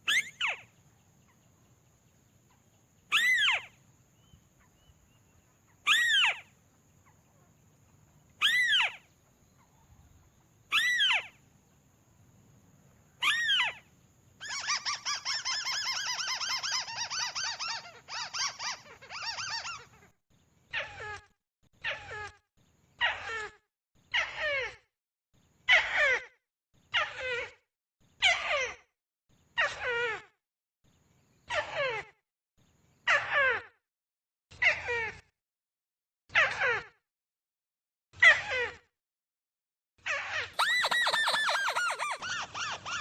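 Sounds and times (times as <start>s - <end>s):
bird rattling call: 40.6s - 43.0s
crake calling: 40.6s - 43.0s.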